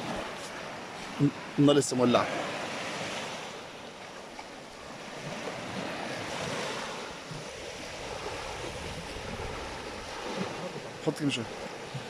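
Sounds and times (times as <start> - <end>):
sea waves washing on shore: 0.0 - 12.0
wind buffeting microphone: 4.6 - 11.0.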